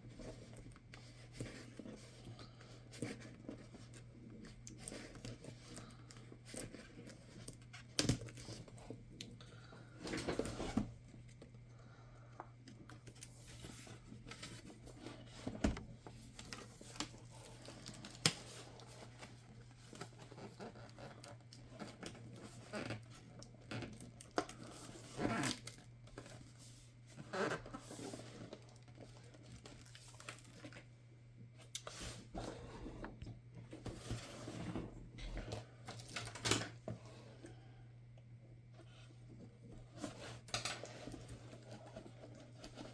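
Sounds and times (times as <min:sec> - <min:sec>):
low electrical hum: 0:00.0 - 0:42.9.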